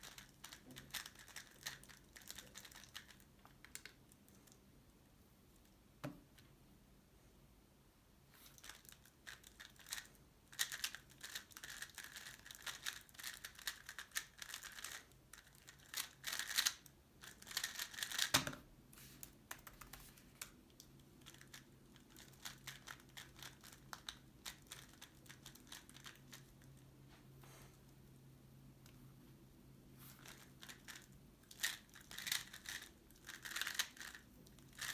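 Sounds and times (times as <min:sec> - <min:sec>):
puzzle cube turning clatter: 0:00.0 - 0:03.9, 0:08.6 - 0:18.3, 0:21.2 - 0:26.5, 0:30.2 - 0:34.9.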